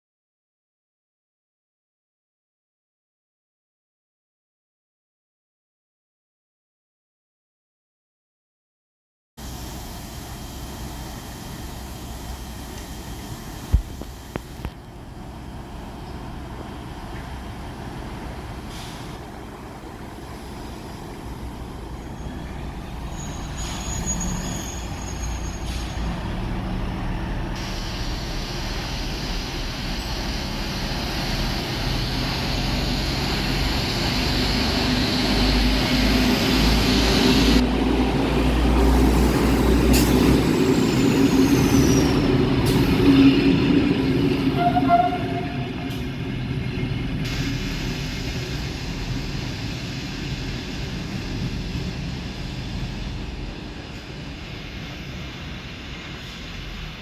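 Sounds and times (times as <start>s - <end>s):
train rumbling: 9.4s - 57.0s
high-pitched squeal: 21.8s - 37.6s, 40.0s - 50.3s.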